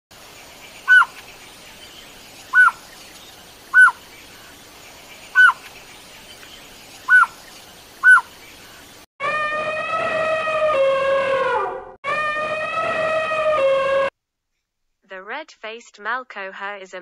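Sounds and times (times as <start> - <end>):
bird calling: 0.2 - 9.1.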